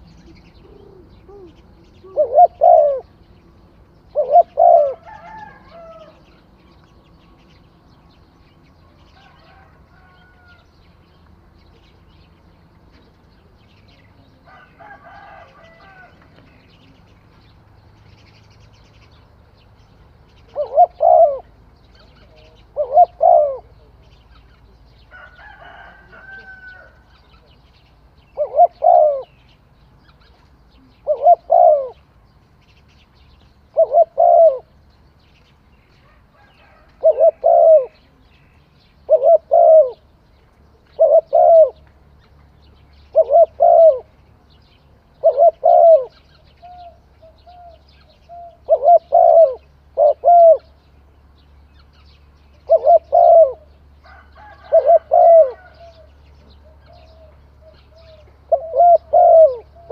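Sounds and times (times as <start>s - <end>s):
dove cooing: 0.0s - 3.2s, 4.0s - 7.4s, 20.4s - 24.1s, 28.3s - 29.4s, 30.7s - 32.0s, 33.7s - 34.8s, 36.1s - 38.3s, 39.0s - 41.8s, 43.1s - 44.2s, 45.2s - 50.8s, 52.5s - 59.9s.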